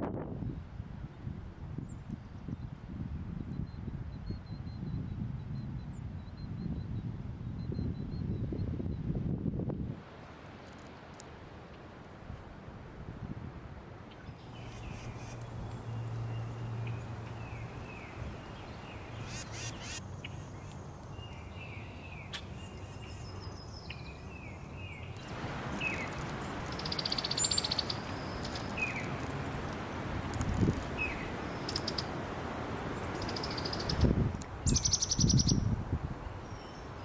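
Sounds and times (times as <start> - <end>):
birds chirping: 14.1 - 30.0.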